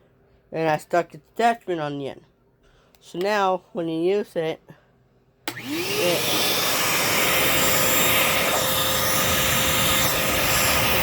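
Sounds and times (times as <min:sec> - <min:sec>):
shop vacuum motor whine: 0:05.5 - 0:11.0.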